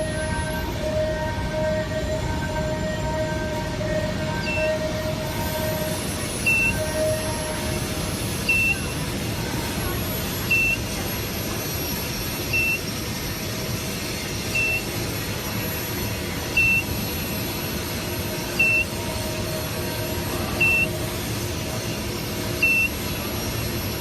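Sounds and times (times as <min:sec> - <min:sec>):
steady mechanical hum: 0:00.0 - 0:24.0
short high electronic beeps: 0:06.3 - 0:07.3, 0:08.3 - 0:09.0, 0:10.4 - 0:11.0, 0:12.4 - 0:13.0, 0:14.5 - 0:15.0, 0:16.5 - 0:17.0, 0:18.6 - 0:19.0, 0:20.6 - 0:21.1, 0:22.5 - 0:23.1.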